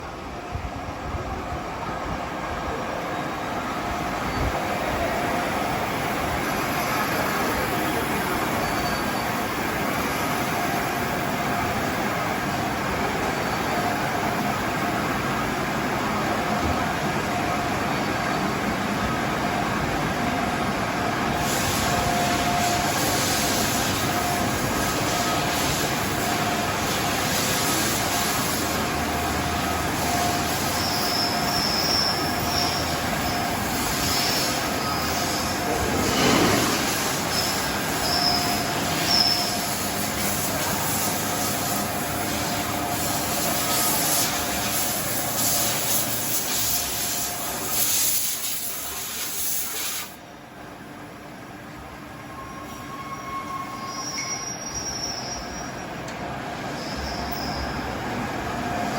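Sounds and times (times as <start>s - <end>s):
high-pitched metallic squeal: 8.5s - 9.6s, 30.0s - 44.4s, 52.3s - 55.9s, 56.7s - 57.9s
machine tools running: 21.3s - 47.0s.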